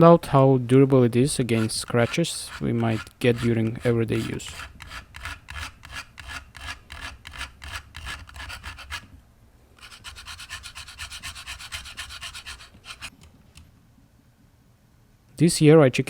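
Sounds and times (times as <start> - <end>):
eggshell scraping: 0.9 - 9.1, 9.8 - 13.2.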